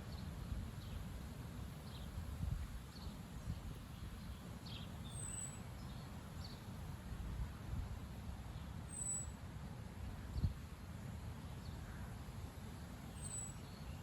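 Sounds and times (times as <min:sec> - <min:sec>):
wind buffeting microphone: 0:01.9 - 0:04.5
faint bird chirps: 0:03.9 - 0:06.6, 0:08.6 - 0:09.4, 0:13.1 - 0:14.0.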